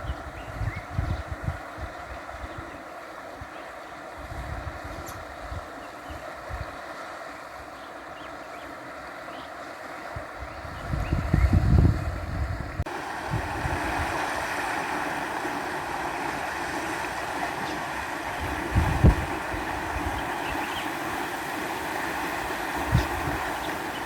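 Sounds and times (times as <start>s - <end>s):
wind thumps on microphone: 0.0s - 2.0s, 10.5s - 14.7s, 17.7s - 20.8s, 22.4s - 24.0s
stream running water: 0.0s - 24.0s.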